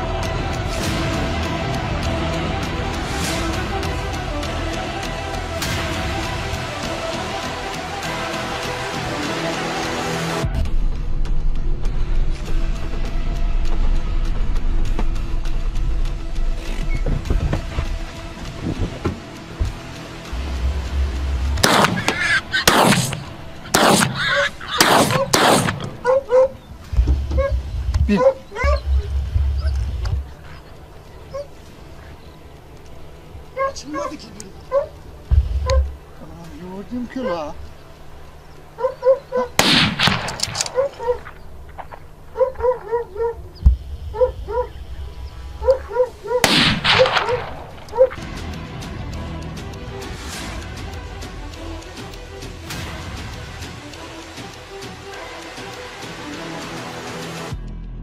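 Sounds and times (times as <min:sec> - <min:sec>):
gunshots with echo: 0:21.6 - 0:26.1, 0:39.6 - 0:42.0, 0:46.4 - 0:48.2
animals yelping: 0:21.7 - 0:32.4, 0:33.4 - 0:36.0, 0:37.2 - 0:39.6, 0:40.6 - 0:48.2
dogs barking: 0:23.7 - 0:31.7, 0:33.5 - 0:36.0, 0:37.2 - 0:37.6, 0:38.8 - 0:39.6, 0:40.7 - 0:41.4, 0:42.3 - 0:44.8, 0:45.5 - 0:48.2.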